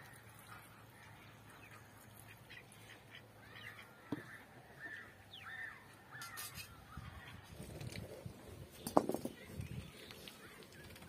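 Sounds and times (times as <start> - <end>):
faint bird calls: 0.0 - 7.4.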